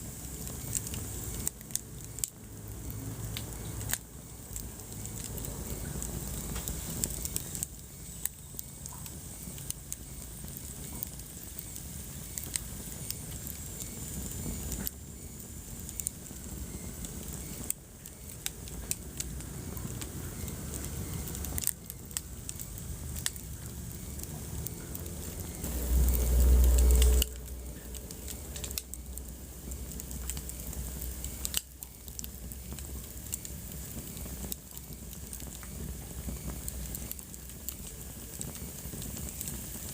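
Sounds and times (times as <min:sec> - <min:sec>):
wood fire crackling and popping: 0:00.0 - 0:39.9
deep fire surge: 0:24.2 - 0:31.6.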